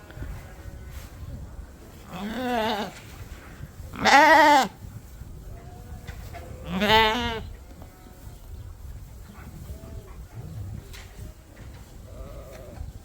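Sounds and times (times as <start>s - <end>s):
lambs bleating: 4.0s - 4.7s, 6.6s - 7.4s.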